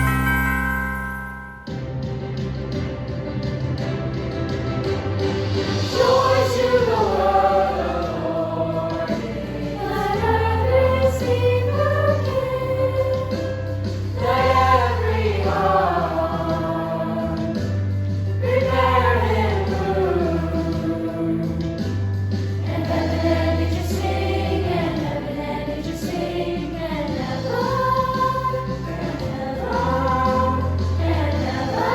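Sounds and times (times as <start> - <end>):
choir singing: 5.9 - 13.4, 14.2 - 17.6, 18.4 - 21.5, 22.7 - 31.9.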